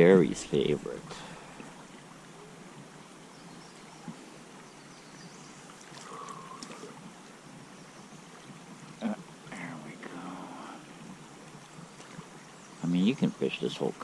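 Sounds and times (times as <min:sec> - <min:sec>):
water lapping and trickling: 0:00.0 - 0:14.0.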